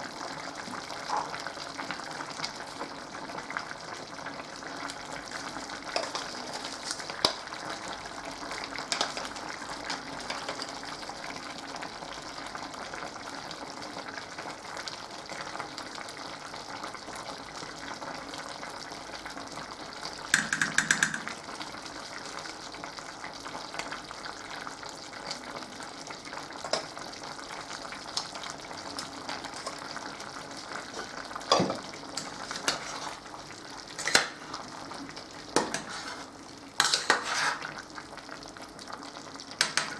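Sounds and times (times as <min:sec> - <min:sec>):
food sizzling in a frying pan: 0:00.0 - 0:39.9
utensil clicking against pan: 0:20.4 - 0:21.4, 0:39.6 - 0:39.9.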